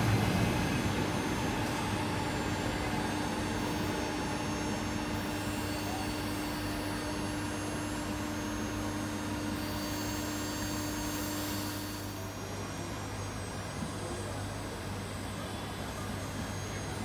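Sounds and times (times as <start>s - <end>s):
train rumble and hiss: 0.0s - 7.2s
constant hum: 0.0s - 17.0s.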